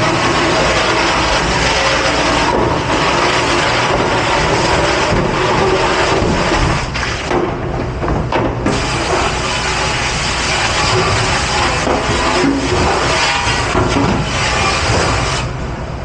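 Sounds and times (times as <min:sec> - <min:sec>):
dishwashing rushing noise: 0:00.0 - 0:15.6.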